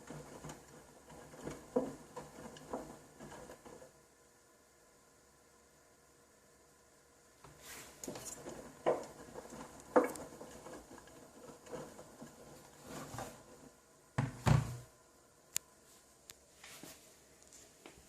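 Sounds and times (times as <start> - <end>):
soft rustling: 7.4 - 13.8, 15.8 - 18.0.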